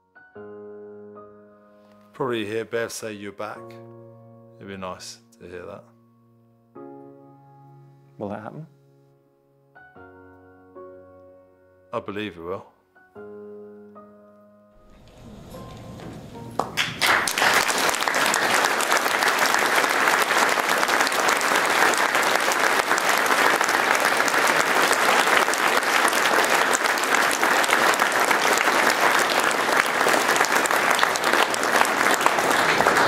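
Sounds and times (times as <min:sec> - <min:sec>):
audience applauding: 0:14.8 - 0:33.0.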